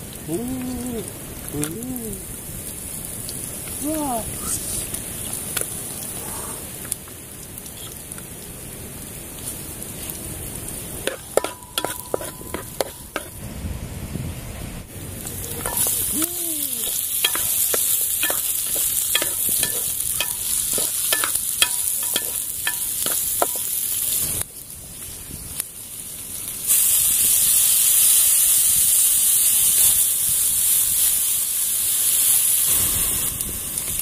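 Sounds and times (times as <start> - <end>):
food sizzling in a pan: 0.0 - 13.4, 14.8 - 34.0
wooden spatula scraping a pan: 11.1 - 13.4.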